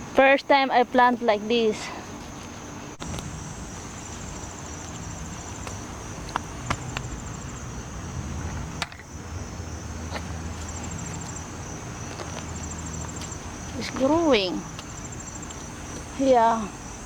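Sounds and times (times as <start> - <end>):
insects trilling: 0.0 - 17.0
low steady rumble: 2.7 - 17.0
potatoes and soil clicking: 12.0 - 14.1.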